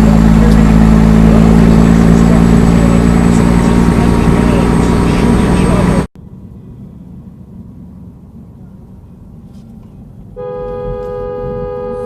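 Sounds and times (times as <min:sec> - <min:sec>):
vehicle rumble: 0:00.0 - 0:12.0
two-note car horn blast: 0:10.4 - 0:12.0.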